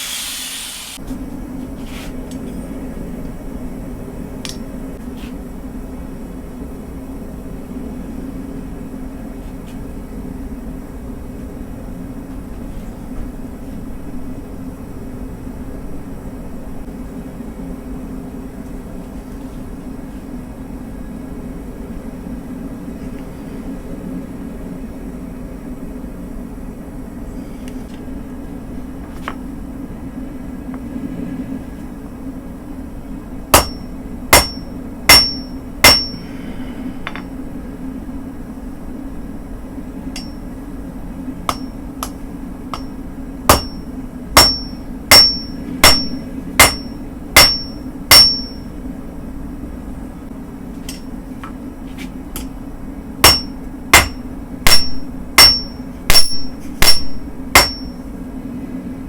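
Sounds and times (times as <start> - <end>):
hammer blows on anvil: 33.5 - 36.4, 37.0 - 37.3, 40.2 - 40.4, 41.5 - 42.2, 42.8 - 48.7, 53.2 - 58.0
low hum: 52.4 - 59.0.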